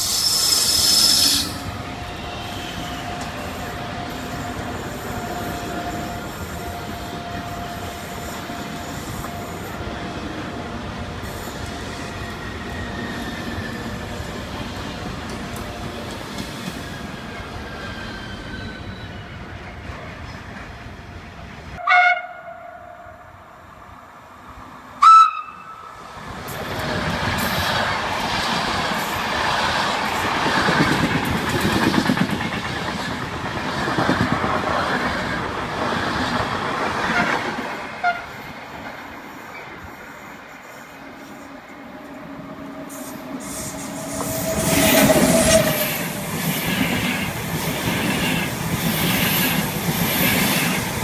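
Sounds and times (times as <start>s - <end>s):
high-speed train running: 0.0s - 51.0s
train passing with loud rumble: 0.0s - 51.0s
train horn blasts: 1.2s - 9.8s, 21.8s - 23.3s, 25.0s - 25.9s, 38.0s - 38.4s.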